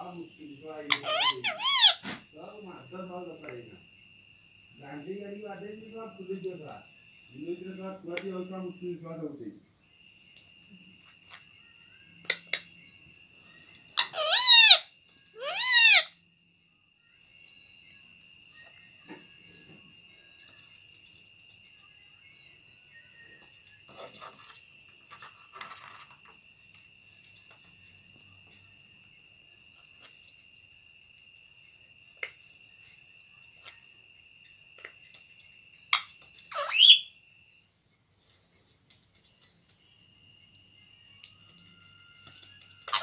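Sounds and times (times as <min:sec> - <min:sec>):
parrot squawk: 0:00.9 - 0:02.2, 0:14.0 - 0:16.2, 0:35.9 - 0:37.1
parrot scratching and clicking: 0:23.5 - 0:26.4.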